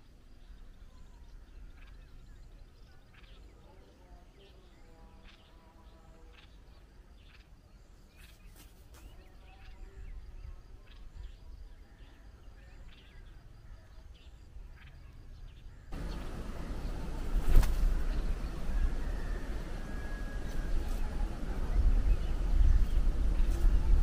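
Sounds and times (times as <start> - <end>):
birds chirping: 0.0 - 24.0
low outdoor rumble: 15.7 - 24.0
loud rushing noise: 16.0 - 21.7.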